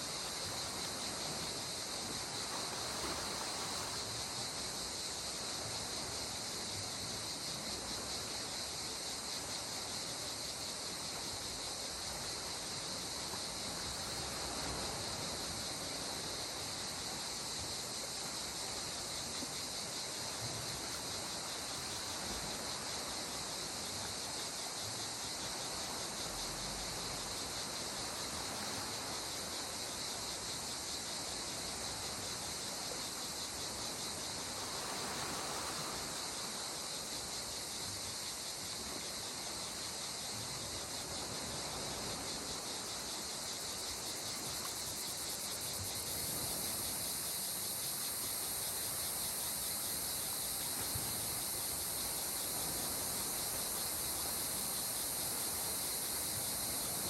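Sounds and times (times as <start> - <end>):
calm sea water washing: 0.0 - 4.6
insects chirping: 0.0 - 57.0.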